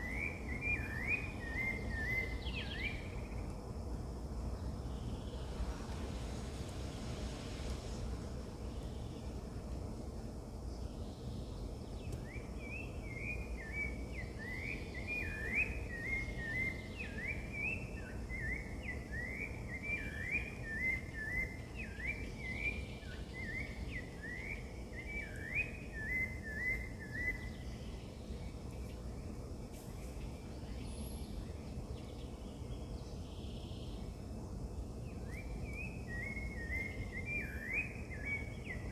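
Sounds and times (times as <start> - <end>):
low outdoor rumble: 0.0 - 19.8
bird chirping rising notes: 4.2 - 27.4.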